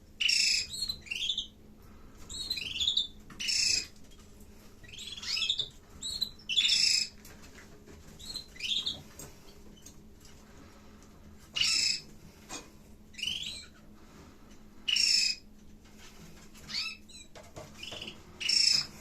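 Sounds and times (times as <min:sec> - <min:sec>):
canaries chirping: 0:00.1 - 0:01.6, 0:02.2 - 0:10.0, 0:11.4 - 0:12.2, 0:13.1 - 0:14.0, 0:14.8 - 0:19.0.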